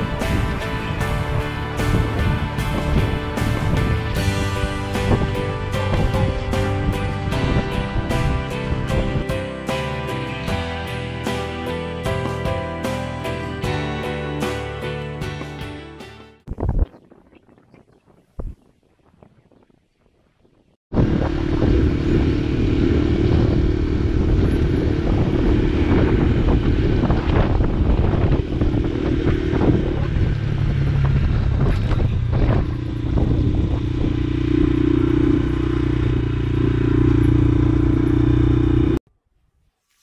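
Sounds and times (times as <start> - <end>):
wind noise on microphone: 0.0 - 9.4, 16.4 - 38.3
motorcycle engine running: 0.0 - 15.6, 20.9 - 39.0.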